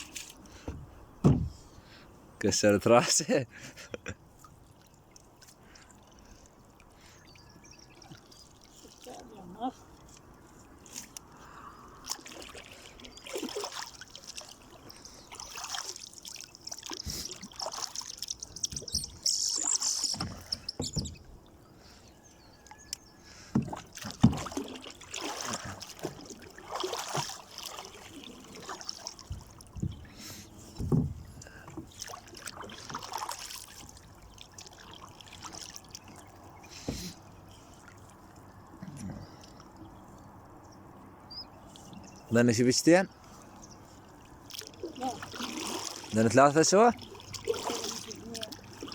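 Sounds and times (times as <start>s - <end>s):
knocks and bumps from boat: 0.6s - 1.7s, 20.1s - 21.4s, 23.4s - 27.4s, 29.2s - 32.6s
water splashing: 2.9s - 22.0s, 22.8s - 40.1s, 41.6s - 48.9s.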